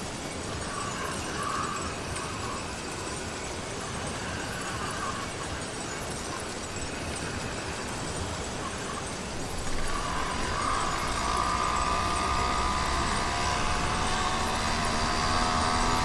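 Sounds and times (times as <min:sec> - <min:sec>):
small engine whine: 0:07.0 - 0:16.0.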